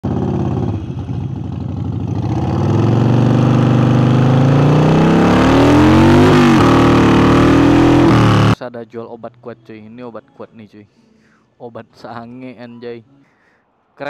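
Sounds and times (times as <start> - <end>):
motorcycle engine accelerating: 0.0 - 8.6.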